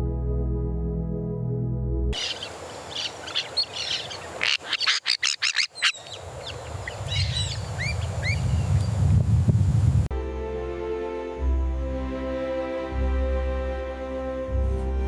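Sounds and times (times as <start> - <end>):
loud sharp bird notes: 2.2 - 8.4
birds calling and chirping: 2.2 - 9.0.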